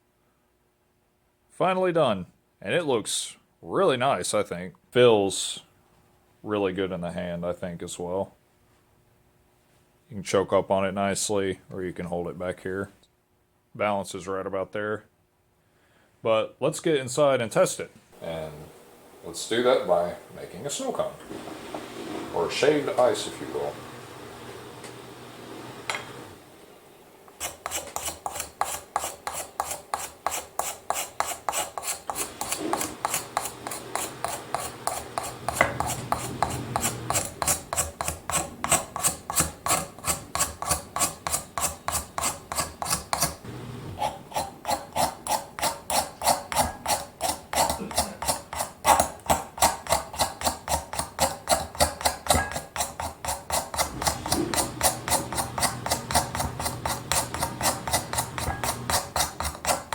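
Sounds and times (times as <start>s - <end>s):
knife scraping ice: 27.4s - 43.4s, 44.0s - 59.9s.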